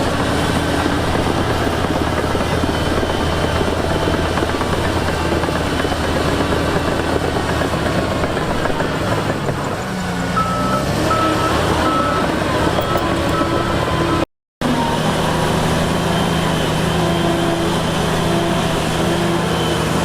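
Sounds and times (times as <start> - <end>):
diesel engine rumble: 0.0 - 20.0
reversing alarm beeps: 10.4 - 14.2.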